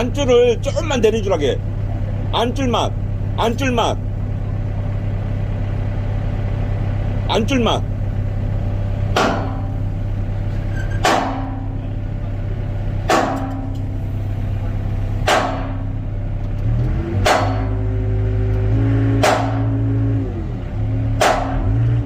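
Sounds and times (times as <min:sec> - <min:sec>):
excavator diesel engine running: 0:00.0 - 0:22.0
sharp knocks: 0:09.1 - 0:09.8, 0:10.9 - 0:11.8, 0:13.1 - 0:13.9, 0:15.2 - 0:16.0, 0:17.1 - 0:17.9, 0:19.1 - 0:19.9, 0:21.1 - 0:21.9.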